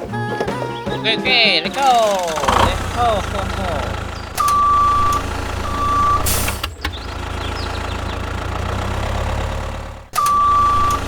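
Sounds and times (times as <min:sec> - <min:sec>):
truck engine rumbling: 0:00.0 - 0:11.0
reversing beeps: 0:04.4 - 0:06.7, 0:10.2 - 0:11.0.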